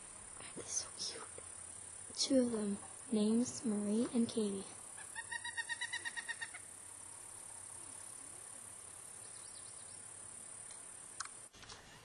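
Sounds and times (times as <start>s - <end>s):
woodpecker calling: 5.0s - 6.7s.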